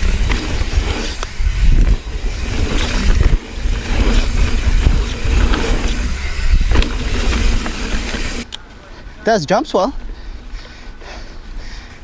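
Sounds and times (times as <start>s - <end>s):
bike knocks and rattles: 0.0s - 8.4s
wind rumbling on microphone: 0.0s - 8.4s
bike tyre noise: 0.0s - 9.2s.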